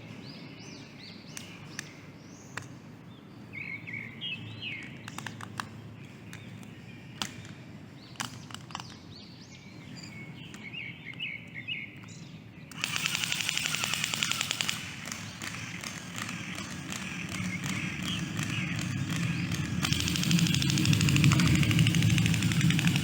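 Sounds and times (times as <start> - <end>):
small birds chirping: 0.0 - 23.0
sharp clicks: 4.8 - 9.0, 10.5 - 23.0
dense rapid rattling: 12.8 - 23.0.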